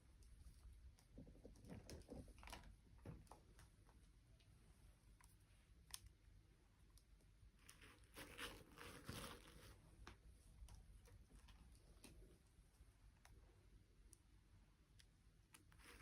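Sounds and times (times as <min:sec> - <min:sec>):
crinkling rustle: 0:07.6 - 0:10.2, 0:15.5 - 0:16.0.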